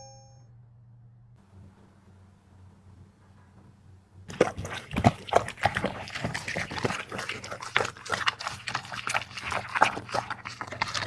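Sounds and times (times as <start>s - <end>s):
dog chewing and crunching: 4.3s - 11.0s.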